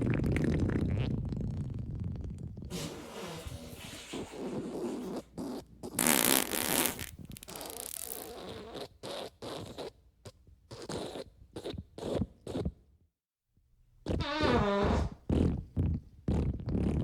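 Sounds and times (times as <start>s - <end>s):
farts: 0.0s - 10.0s, 14.1s - 17.0s.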